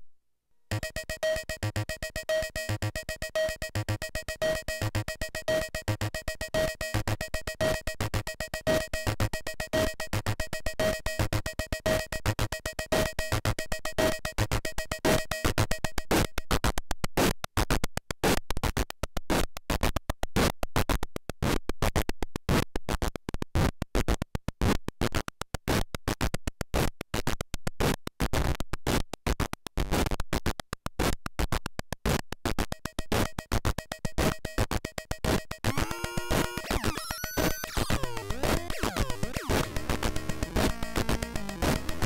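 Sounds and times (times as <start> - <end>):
noise machine stuttering bursts: 34.8 - 42.0.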